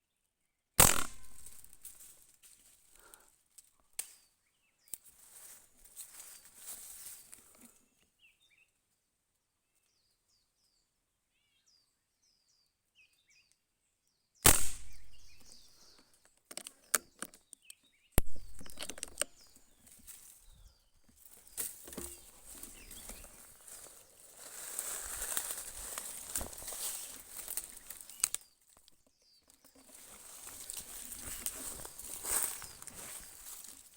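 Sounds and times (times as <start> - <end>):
sharp shots: 0.8 - 1.7, 14.4 - 15.4
rustling and clicking in foliage: 0.8 - 8.3, 14.5 - 33.9
small birds chirping: 3.0 - 33.9.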